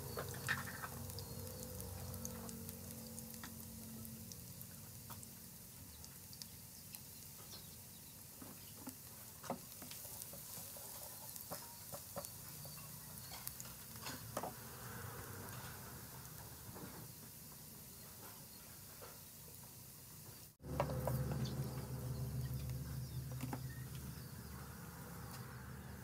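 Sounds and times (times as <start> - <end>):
garlic sizzling in oil: 0.0 - 26.0
spatula stirring and scraping: 8.4 - 14.8.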